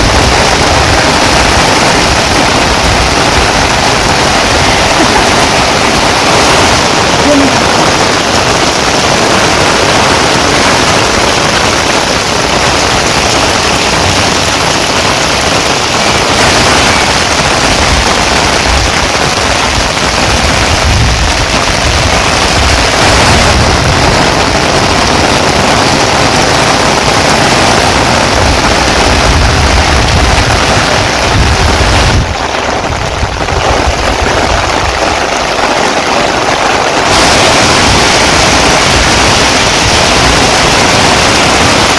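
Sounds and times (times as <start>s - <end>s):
heavy rain pouring: 0.0s - 41.9s.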